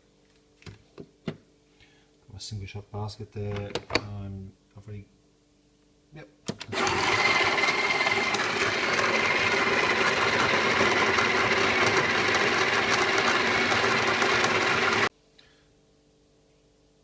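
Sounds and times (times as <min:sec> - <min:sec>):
coffee grinder grinding beans: 0:06.7 - 0:15.1.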